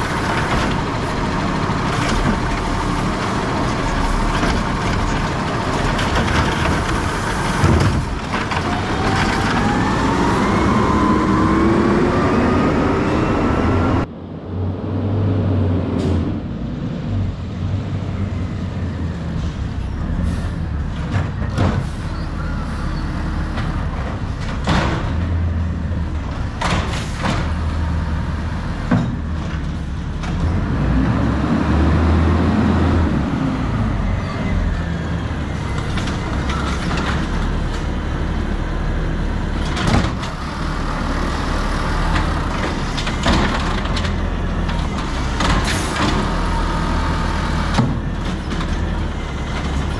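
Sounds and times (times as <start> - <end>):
diesel engine running low: 0.0 - 49.9
engine revving with whine: 6.0 - 14.1.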